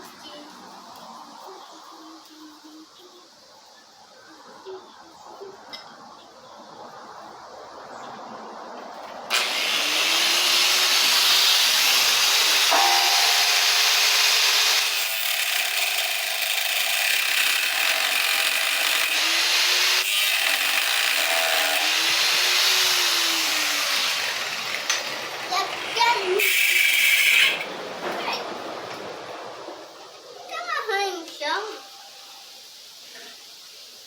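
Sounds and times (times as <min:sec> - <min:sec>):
power tool running under load: 0:09.3 - 0:27.6.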